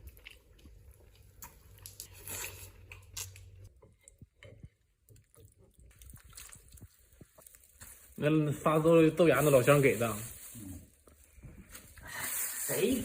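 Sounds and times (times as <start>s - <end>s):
chewing juicy food: 0.0s - 7.8s.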